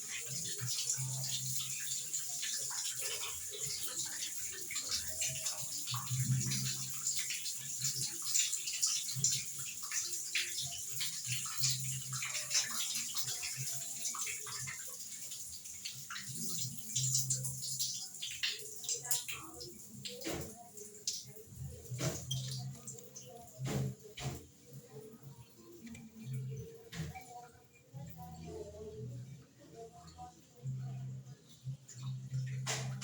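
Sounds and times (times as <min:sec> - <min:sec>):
water splashing in washing machine: 0:00.0 - 0:24.7.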